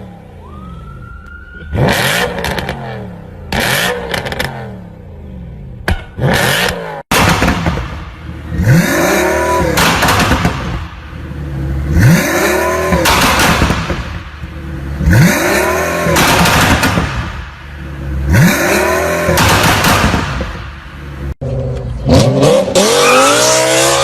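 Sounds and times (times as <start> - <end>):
car engine revving: 1.7 - 24.0
exhaust crackling and popping: 5.8 - 22.1.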